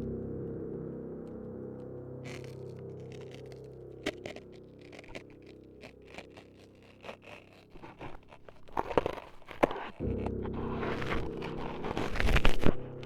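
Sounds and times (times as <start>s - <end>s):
low steady drone: 0.0s - 6.0s
close scraping and crunching: 2.2s - 13.0s.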